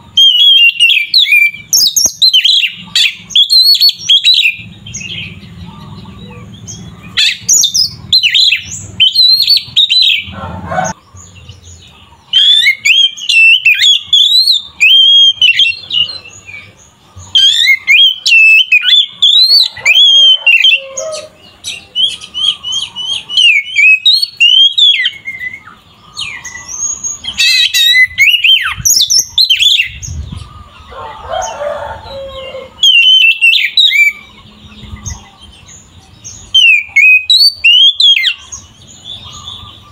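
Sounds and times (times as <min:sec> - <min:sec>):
bird singing whistles and trills: 0:00.0 - 0:30.9, 0:32.0 - 0:39.9.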